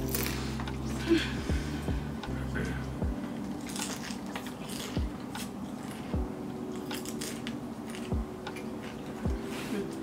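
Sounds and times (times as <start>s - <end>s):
crunching tortilla chips: 3.4s - 9.1s.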